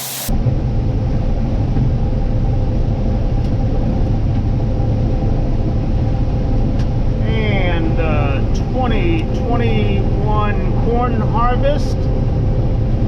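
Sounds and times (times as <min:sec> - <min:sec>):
faint steady hum: 0:05.6 - 0:13.0
heavy engine rumbling: 0:07.0 - 0:12.8.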